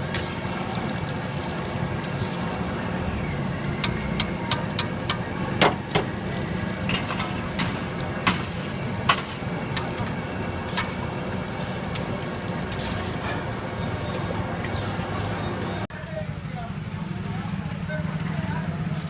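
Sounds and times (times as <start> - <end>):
metal utensils clinking: 3.8 - 13.6.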